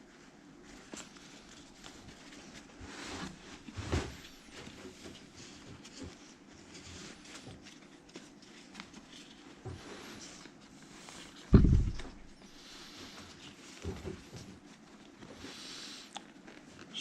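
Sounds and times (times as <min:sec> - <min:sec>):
knock: 0:11.6 - 0:12.2.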